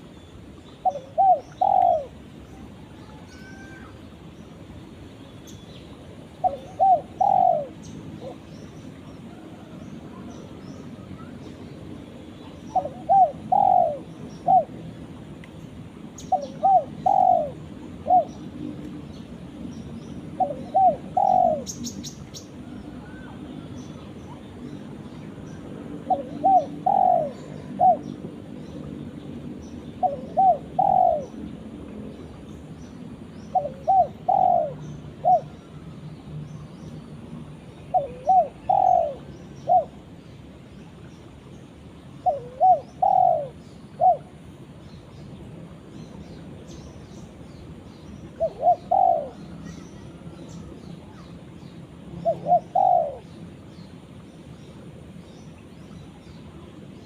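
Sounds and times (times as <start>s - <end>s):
dove cooing: 0.8s - 3.9s, 6.3s - 8.5s, 12.7s - 14.8s, 16.3s - 18.4s, 20.4s - 23.7s, 26.0s - 28.1s, 30.0s - 31.4s, 33.5s - 35.8s, 37.9s - 40.0s, 42.2s - 44.4s, 48.4s - 50.4s, 52.2s - 53.3s.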